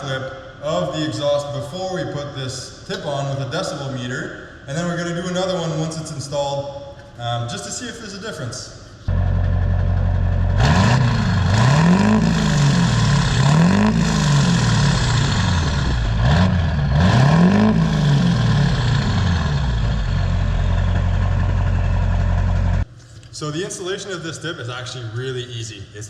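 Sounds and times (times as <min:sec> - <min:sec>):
diesel truck engine idling and revving: 0:09.1 - 0:22.9.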